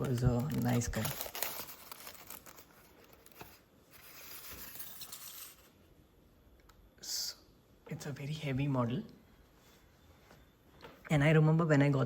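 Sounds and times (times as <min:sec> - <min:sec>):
packaging rustling: 0:00.0 - 0:05.2.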